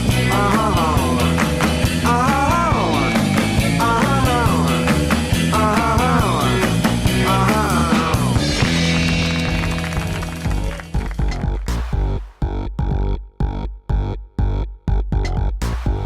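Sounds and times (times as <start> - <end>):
steady rock drum beat: 0.0 - 11.5.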